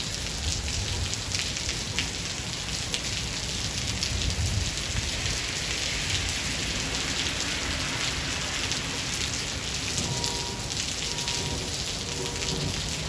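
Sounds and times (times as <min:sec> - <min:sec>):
heavy rain hissing: 0:04.2 - 0:13.0.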